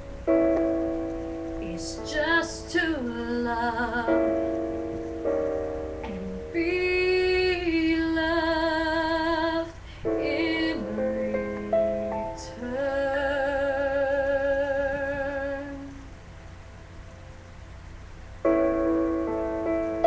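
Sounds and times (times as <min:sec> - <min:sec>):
musical backing: 0:00.0 - 0:20.0
woman singing with vibrato: 0:01.6 - 0:04.4, 0:06.1 - 0:16.1.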